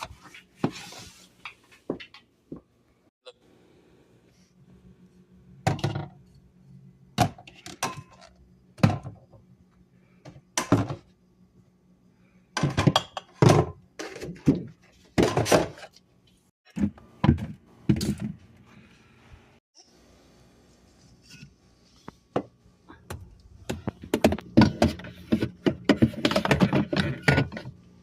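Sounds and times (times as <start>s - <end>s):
containers thunking on fridge shelves: 5.6s - 6.2s, 7.2s - 9.4s, 10.3s - 11.1s, 12.6s - 15.9s, 16.7s - 18.4s, 23.1s - 27.7s.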